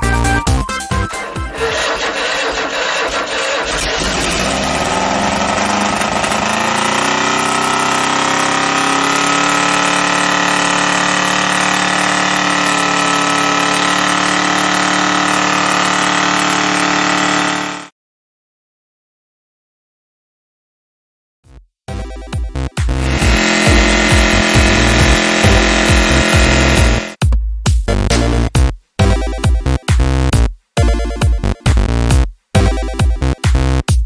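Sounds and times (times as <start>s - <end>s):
car engine idling: 1.2s - 17.9s, 23.0s - 27.2s.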